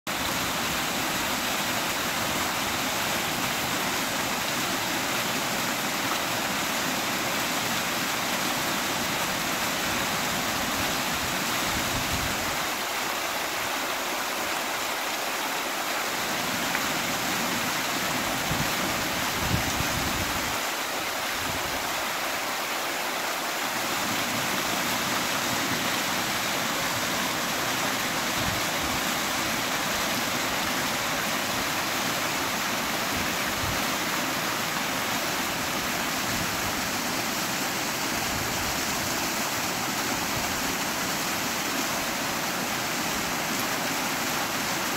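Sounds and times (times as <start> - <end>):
waterfall rushing: 0.1 - 44.9.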